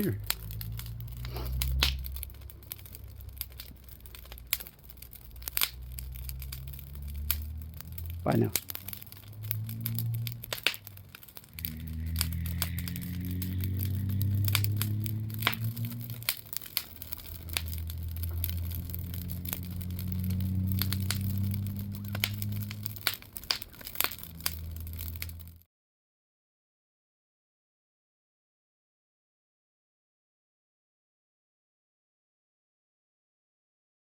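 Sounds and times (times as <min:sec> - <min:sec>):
low humming drone: 0:00.0 - 0:25.5
campfire crackling and popping: 0:00.0 - 0:25.6.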